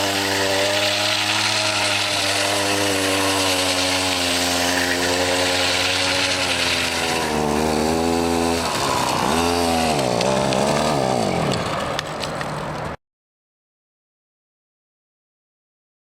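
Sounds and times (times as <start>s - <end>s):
grass trimmer engine revving: 0.0s - 12.0s.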